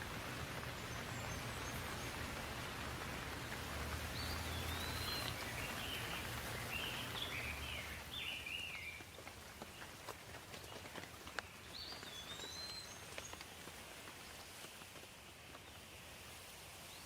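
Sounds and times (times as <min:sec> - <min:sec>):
raindrops ticking sharply: 0:00.0 - 0:14.4
steady rain falling: 0:00.0 - 0:17.0
bird chirping: 0:00.6 - 0:02.6, 0:04.0 - 0:09.9, 0:11.4 - 0:13.6.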